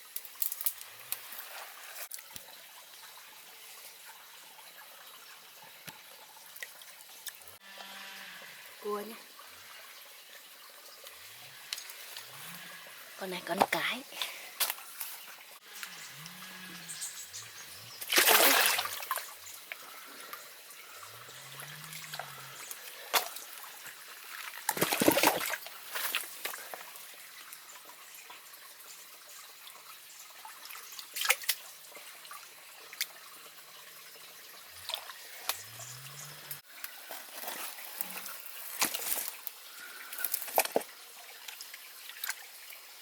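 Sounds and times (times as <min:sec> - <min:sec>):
water trickling: 0:00.0 - 0:43.0
rushes of water: 0:17.7 - 0:26.9.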